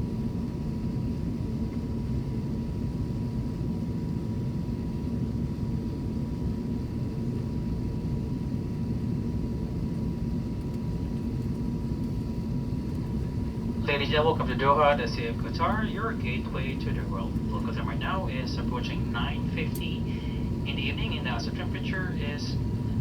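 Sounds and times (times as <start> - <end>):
aircraft cabin low rumble: 0.0 - 23.0
faint steady whine: 10.5 - 23.0.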